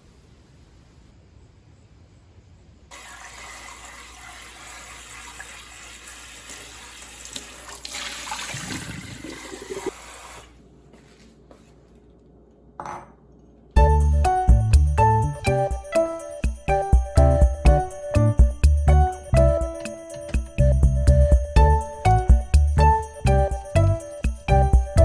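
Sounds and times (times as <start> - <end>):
water running: 2.9 - 10.6.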